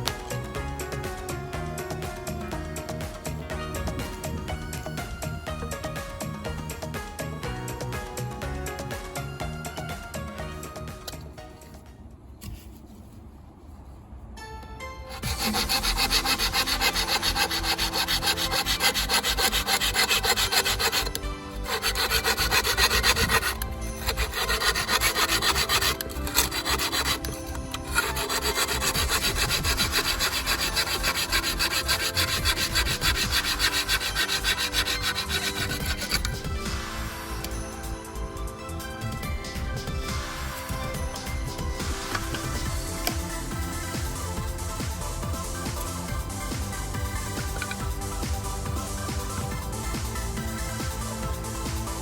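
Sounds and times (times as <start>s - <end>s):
hand saw cutting bamboo: 15.1s - 37.6s, 40.3s - 52.0s.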